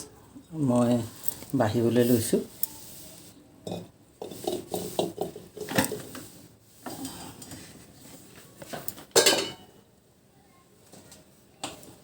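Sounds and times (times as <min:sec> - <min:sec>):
utensils and dishes clinking: 0:08.7 - 0:09.8.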